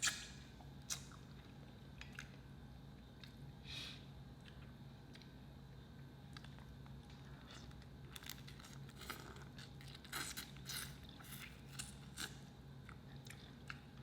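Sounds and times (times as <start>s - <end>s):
person chewing crunchy food: 6.3s - 14.0s.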